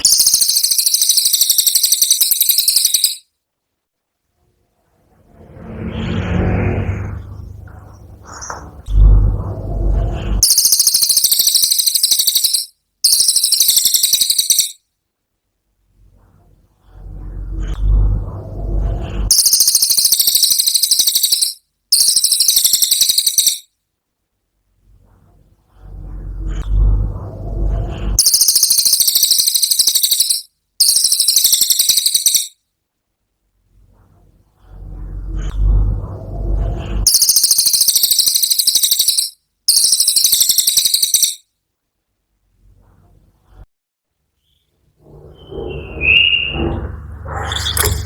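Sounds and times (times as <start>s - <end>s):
bird high-pitched trill: 0.0s - 3.2s, 10.4s - 14.8s, 19.3s - 23.7s, 28.2s - 32.6s, 37.1s - 41.4s, 44.5s - 48.0s
short low rumble: 4.8s - 10.4s, 16.8s - 19.3s, 25.7s - 28.2s, 34.6s - 37.1s, 45.0s - 48.0s.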